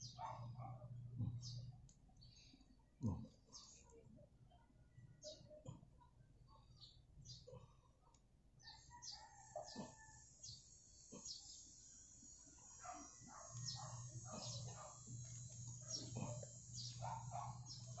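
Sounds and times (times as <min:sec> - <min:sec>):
faint birds chirping: 0:00.0 - 0:18.0
low steady hum: 0:09.8 - 0:18.0.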